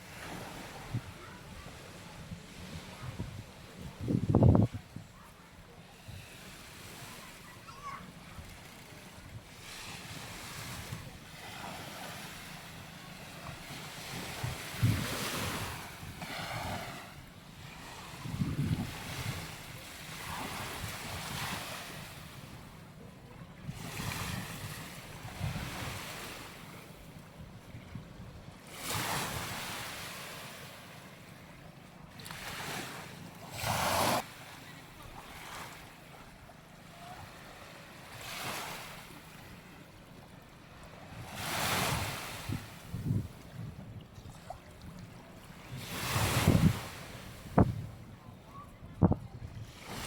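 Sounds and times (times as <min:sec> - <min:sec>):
waves washing onto beach: 0:00.0 - 0:27.7, 0:28.6 - 0:50.0
wind buffeting microphone: 0:00.8 - 0:05.2, 0:14.0 - 0:17.3, 0:18.1 - 0:22.6, 0:41.1 - 0:45.0, 0:45.7 - 0:50.0.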